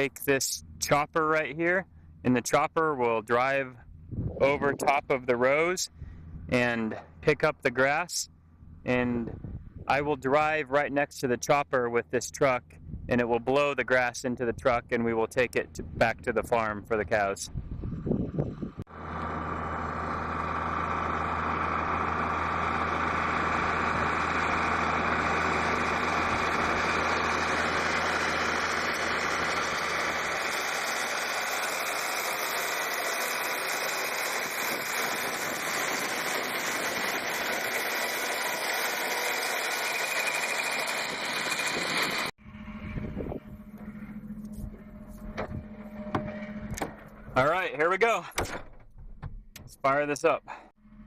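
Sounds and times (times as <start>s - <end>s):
tractor engine running: 0.0s - 51.0s
grass mower whirring: 18.4s - 48.2s.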